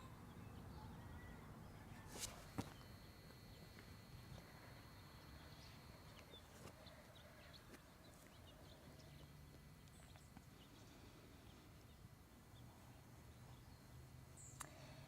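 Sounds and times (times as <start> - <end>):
faint outdoor rumble: 0.0 - 15.0
small high chirps: 2.2 - 11.0
faint ticks: 14.5 - 14.9.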